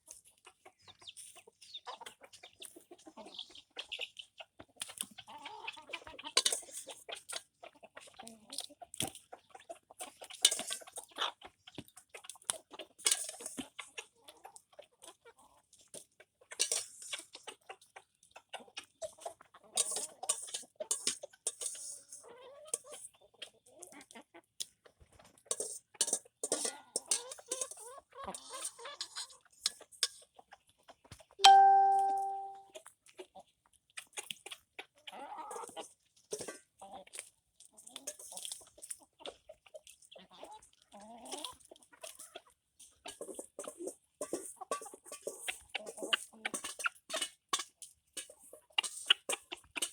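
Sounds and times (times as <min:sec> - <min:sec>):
chickens clucking softly: 0:00.1 - 0:21.4, 0:22.1 - 0:31.6, 0:34.2 - 0:47.3.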